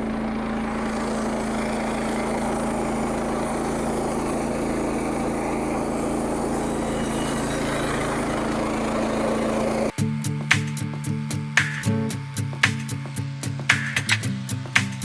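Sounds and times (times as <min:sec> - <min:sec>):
sawmill gasoline engine running: 0:00.0 - 0:15.0
music with regular beat: 0:09.9 - 0:15.0.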